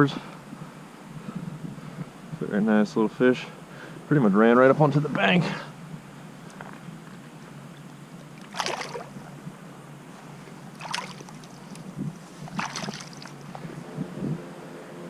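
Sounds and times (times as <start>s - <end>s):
steady background hiss: 0.0s - 15.0s
water splashing in a stream: 8.3s - 9.3s, 10.6s - 13.6s.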